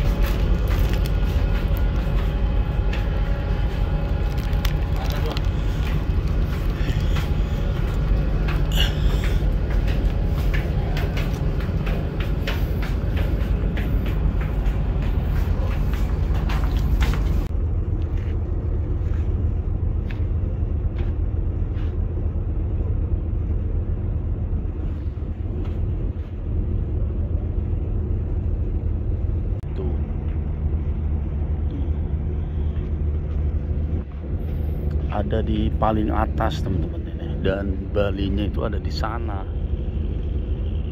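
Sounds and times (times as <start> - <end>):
low diesel engine drone: 0.0 - 40.9.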